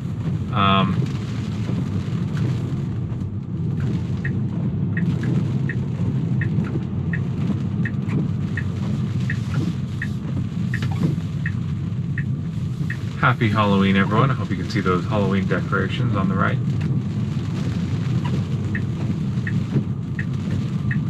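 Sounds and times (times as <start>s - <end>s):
road and tyre rumble: 0.0s - 21.0s
turn signal ticking: 3.7s - 15.4s, 16.7s - 21.0s.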